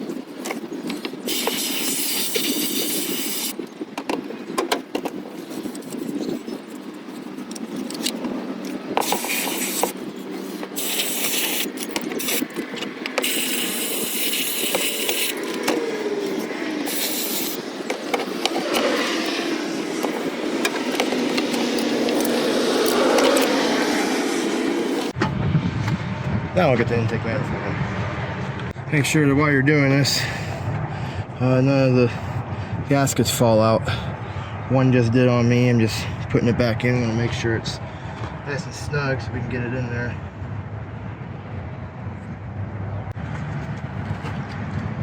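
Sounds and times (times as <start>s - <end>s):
clicks and scrapes handling parts: 0.4s - 23.8s
aerosol spray hissing: 1.3s - 3.6s, 9.0s - 10.0s, 10.7s - 12.4s, 13.2s - 15.5s, 16.8s - 17.6s.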